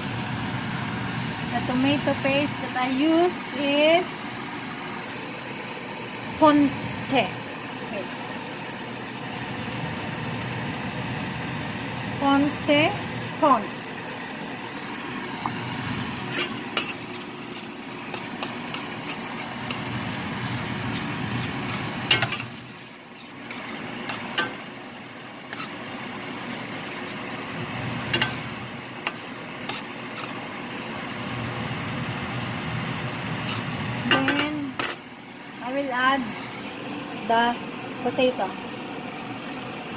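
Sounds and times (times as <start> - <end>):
metal spoon scraping a pan: 16.2 - 24.6, 25.5 - 25.8, 26.4 - 27.2, 28.1 - 30.5, 33.4 - 35.0.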